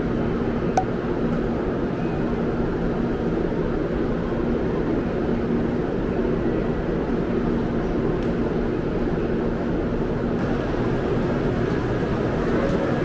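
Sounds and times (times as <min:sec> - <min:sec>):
bullet train noise: 0:00.0 - 0:13.0
low steady hum: 0:09.2 - 0:13.0.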